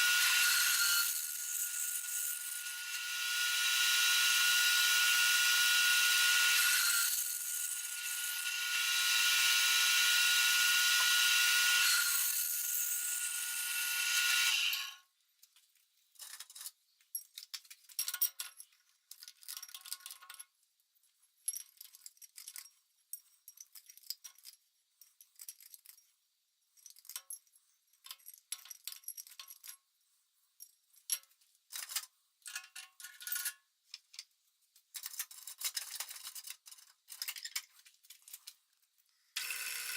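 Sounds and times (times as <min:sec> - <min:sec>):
high-pitched power tool running: 0:00.0 - 0:15.0, 0:39.4 - 0:39.9.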